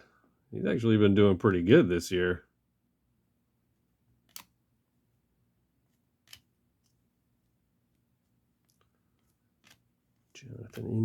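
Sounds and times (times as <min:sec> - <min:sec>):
trading cards clicking: 0:04.3 - 0:04.5, 0:06.2 - 0:07.0, 0:10.6 - 0:11.0.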